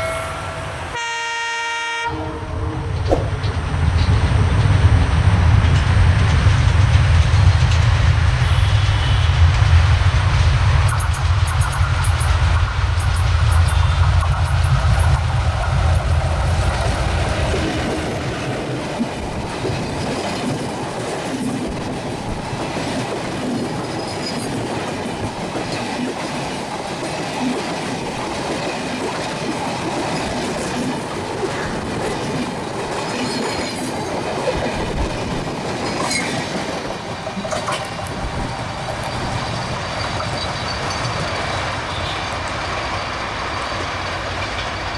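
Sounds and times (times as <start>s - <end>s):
diesel locomotive engine rumble: 0.0s - 25.7s, 29.3s - 44.9s
train wheels clattering over rail joints: 13.0s - 44.9s
high wheel squeaks: 37.4s - 44.9s.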